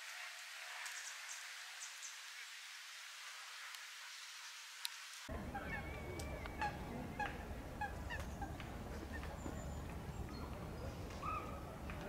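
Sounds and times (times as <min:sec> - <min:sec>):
waterbirds calling: 0:05.3 - 0:11.7.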